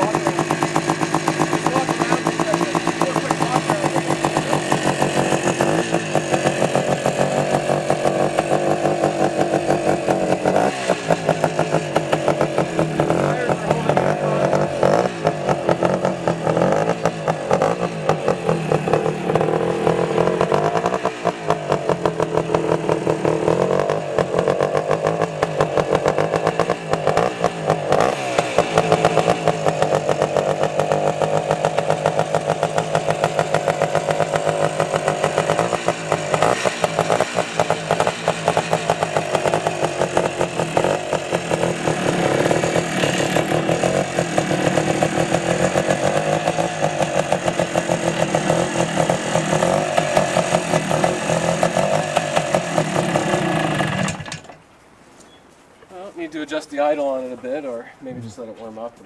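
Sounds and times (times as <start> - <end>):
two-stroke engine revving: 0.0 - 54.6.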